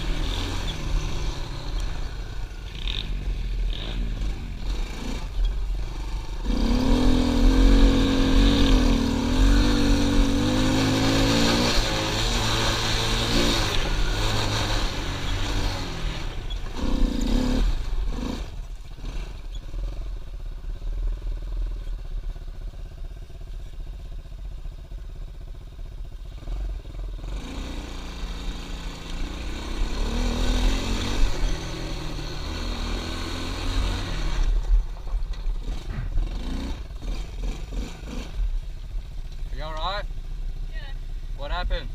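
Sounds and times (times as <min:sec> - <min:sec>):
pit bike engine revving: 0:00.0 - 0:20.1, 0:26.3 - 0:38.8.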